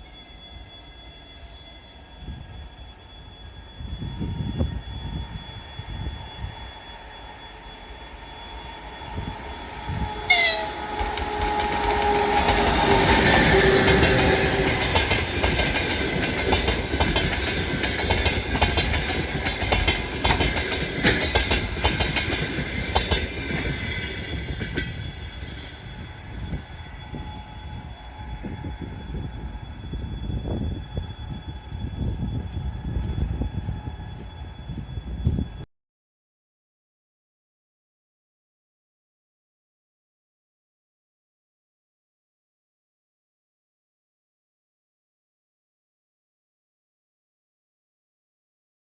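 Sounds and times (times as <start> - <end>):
locomotive horn: 10.2 - 14.8
train wheels clattering: 10.3 - 25.9.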